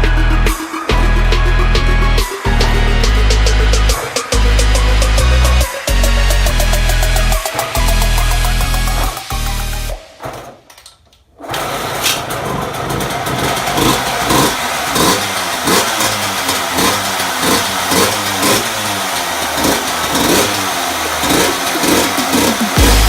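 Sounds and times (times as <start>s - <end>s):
two-stroke engine revving: 11.4s - 23.0s.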